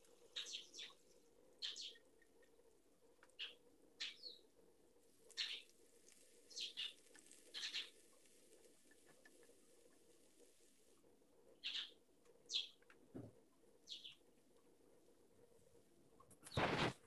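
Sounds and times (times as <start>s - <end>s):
faint steady hum: 0.0s - 17.0s
bird chirps: 0.3s - 1.0s, 1.6s - 2.0s, 3.4s - 4.4s, 5.3s - 5.7s, 6.5s - 8.0s, 11.6s - 12.8s, 13.9s - 14.2s.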